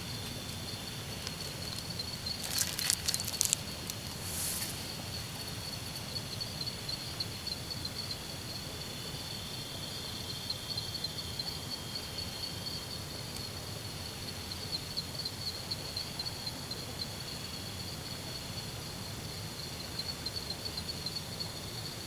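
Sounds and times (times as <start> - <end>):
insects chirping in pulsing trill: 0.1 - 13.2.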